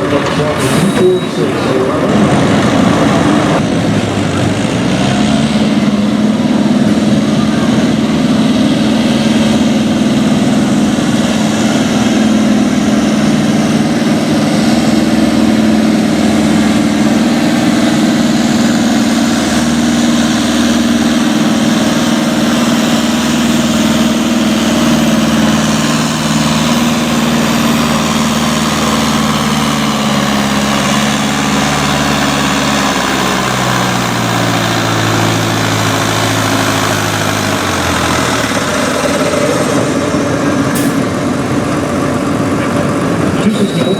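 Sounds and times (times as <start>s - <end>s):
tractor engine under load: 0.0s - 43.9s.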